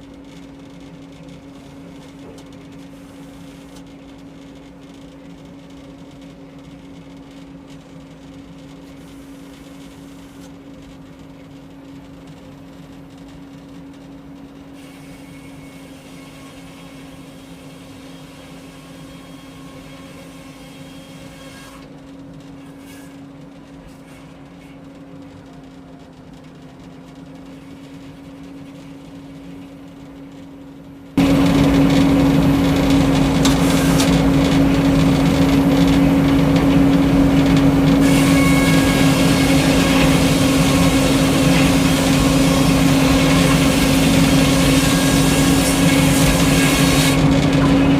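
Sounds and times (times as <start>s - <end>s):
sawmill humming: 31.1s - 47.9s.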